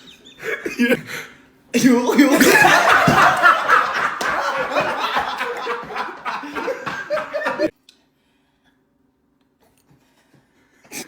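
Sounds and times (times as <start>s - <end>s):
people laughing hard: 1.8s - 7.7s.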